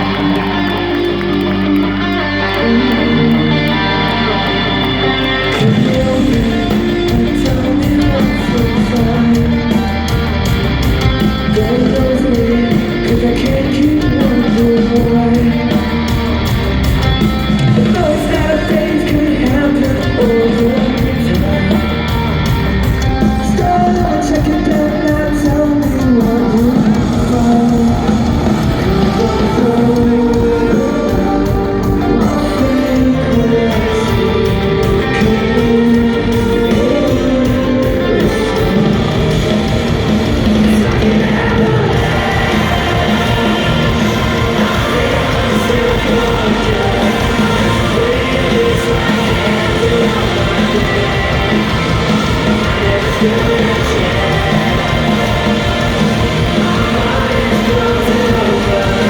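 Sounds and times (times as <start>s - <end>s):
electric guitars: 0.0s - 59.0s
live rock band playing: 0.0s - 59.0s
person singing lead vocal: 0.0s - 59.0s.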